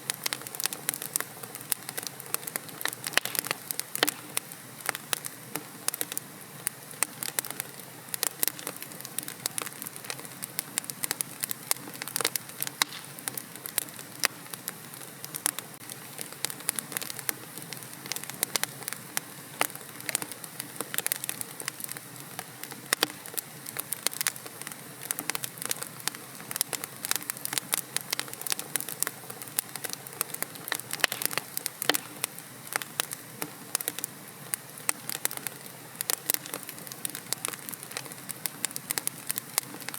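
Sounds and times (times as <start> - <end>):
fire crackling and popping: 0.0 - 39.9
soft fire hiss: 0.0 - 39.9.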